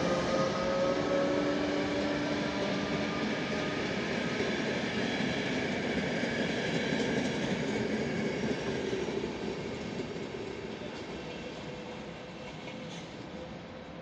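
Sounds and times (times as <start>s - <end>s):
passenger train rolling past: 0.0s - 14.0s.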